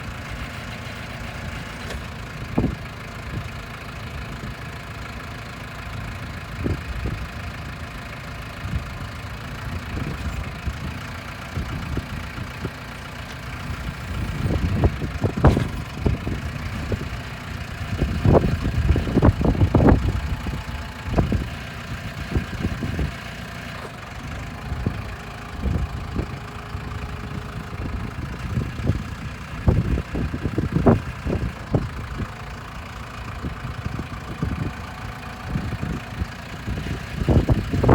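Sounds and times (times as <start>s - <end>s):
tractor diesel engine idling: 0.0s - 37.9s
low thumps and bumps: 10.0s - 23.2s.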